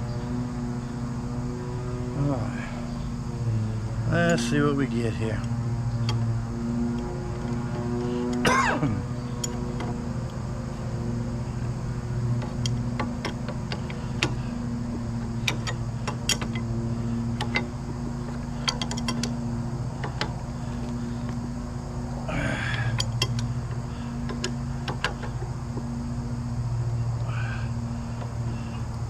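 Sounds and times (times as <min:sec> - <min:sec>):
low mechanical hum: 0:00.0 - 0:29.0
tools clicking on metal parts: 0:12.2 - 0:21.4, 0:22.7 - 0:25.5.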